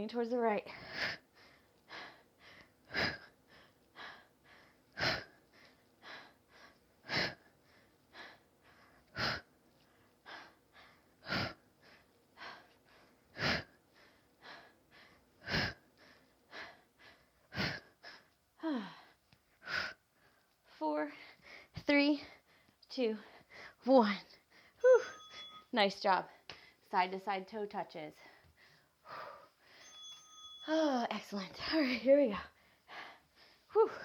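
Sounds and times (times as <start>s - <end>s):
woman breathing hard: 0.7s - 23.8s, 28.2s - 30.1s, 32.4s - 34.0s.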